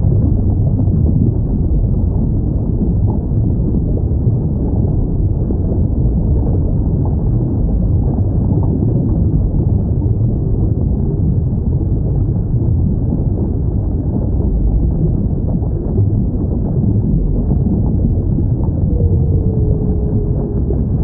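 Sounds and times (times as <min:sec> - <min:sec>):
low underwater rumble: 0:00.0 - 0:21.0.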